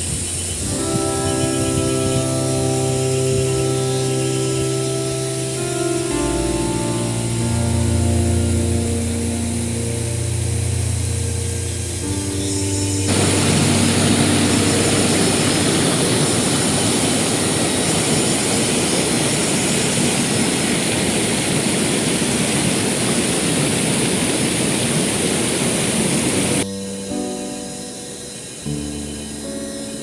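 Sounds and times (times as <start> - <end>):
background music: 0.5 - 18.6, 26.6 - 30.0
waterfall roaring: 13.1 - 26.6.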